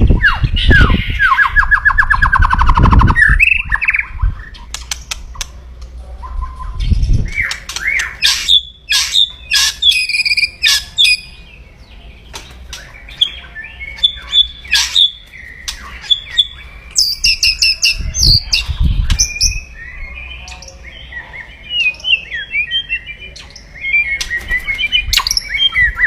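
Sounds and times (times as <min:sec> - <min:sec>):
bird harsh chattering call: 0:07.4 - 0:11.4, 0:13.8 - 0:19.8.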